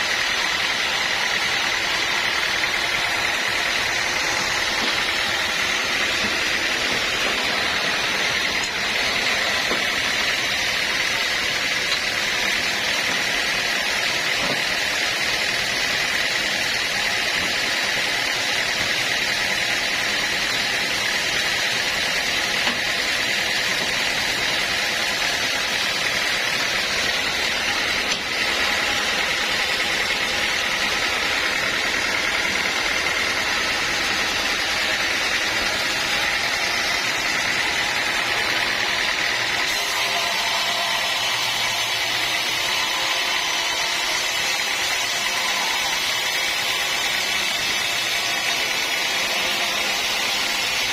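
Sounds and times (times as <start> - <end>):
sawmill machinery running: 0.0 - 50.9
steady high whine: 0.0 - 50.9.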